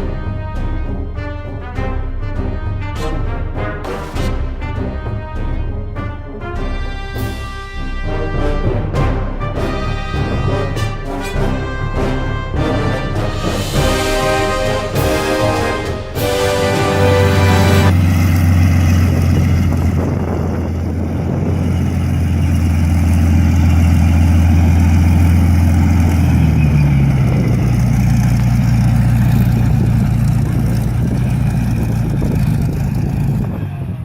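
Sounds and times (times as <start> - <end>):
piston aircraft engine droning: 8.8 - 34.0.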